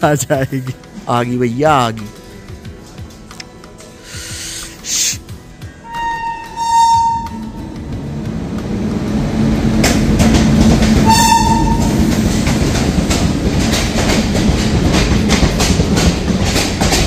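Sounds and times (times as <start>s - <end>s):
train rumbling: 5.3s - 17.0s
train horn blast: 5.8s - 8.2s, 10.9s - 12.2s
wheels clacking over rail joints: 7.0s - 17.0s.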